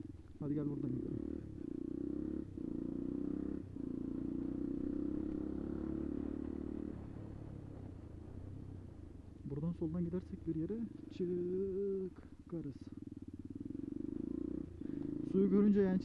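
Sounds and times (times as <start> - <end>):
motorcycle engine under throttle: 0.0 - 9.2, 10.8 - 16.0.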